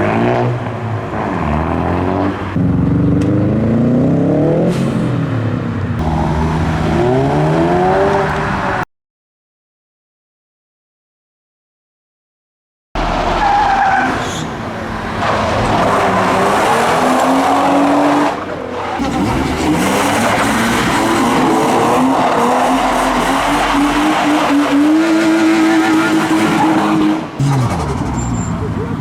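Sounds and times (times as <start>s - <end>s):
car engine revving hard: 6.0s - 8.8s, 19.0s - 28.2s
tyres screeching: 13.0s - 28.7s.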